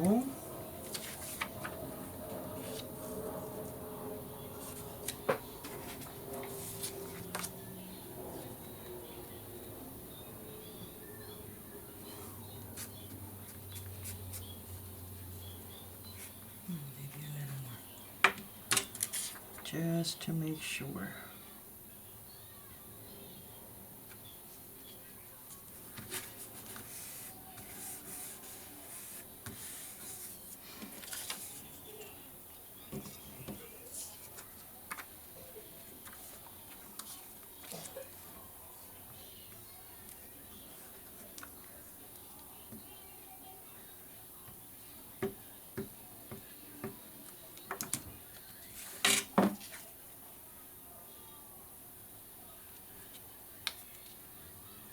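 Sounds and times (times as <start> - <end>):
paper rustling: 0.8 - 3.6, 4.6 - 7.6, 18.9 - 19.5, 25.5 - 31.8, 35.9 - 38.1.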